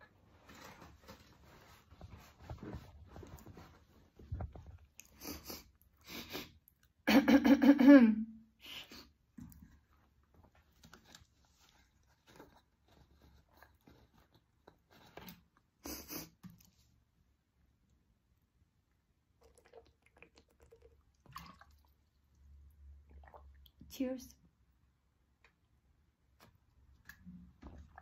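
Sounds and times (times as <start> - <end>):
chewing and mouth noises: 19.4 - 22.4.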